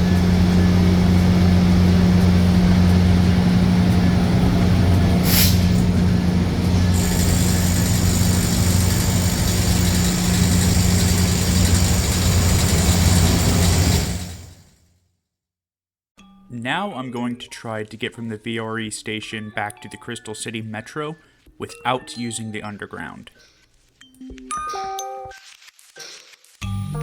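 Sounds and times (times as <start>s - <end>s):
diesel locomotive idling: 0.0s - 14.7s
air brake hiss: 5.2s - 6.0s.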